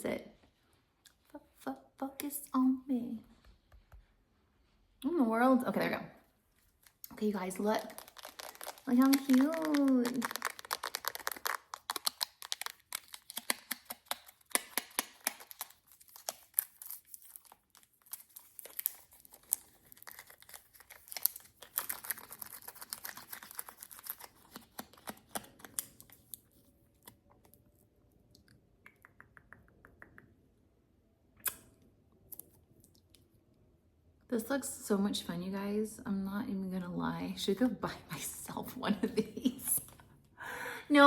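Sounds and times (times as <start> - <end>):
plastic packaging crinkling: 6.6 - 27.2.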